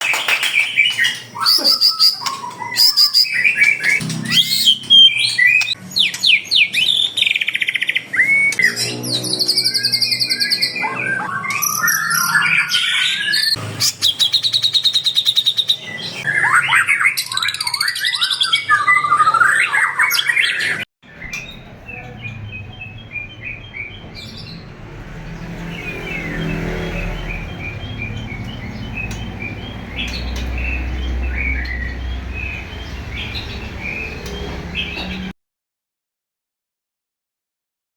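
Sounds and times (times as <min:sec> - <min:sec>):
songbirds singing: 0:00.0 - 0:35.3
faint bird chirping: 0:00.1 - 0:05.8.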